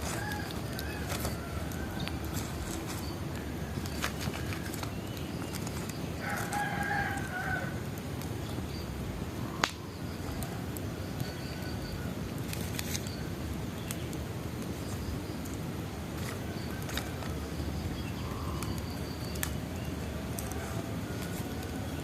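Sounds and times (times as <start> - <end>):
rooster crowing: 0.0 - 2.9, 6.2 - 7.9
bonfire crackling: 0.0 - 22.0.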